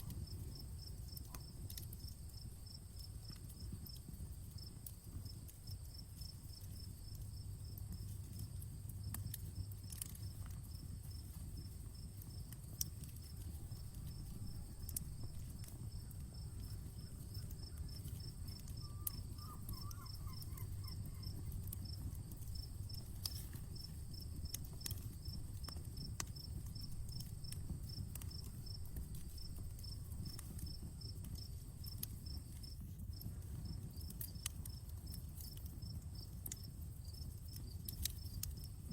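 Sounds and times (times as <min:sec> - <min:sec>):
campfire crackling: 0:00.0 - 0:38.9
crickets chirping: 0:09.6 - 0:38.9.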